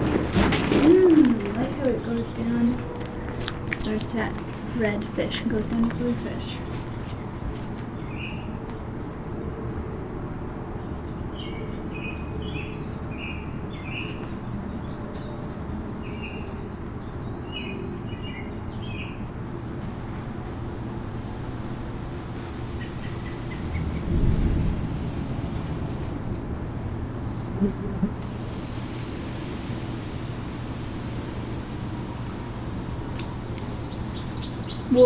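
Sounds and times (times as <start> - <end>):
low outdoor rumble: 0.0 - 7.4, 19.4 - 35.0
small birds chirping: 3.8 - 9.8, 10.9 - 26.0, 26.7 - 35.0.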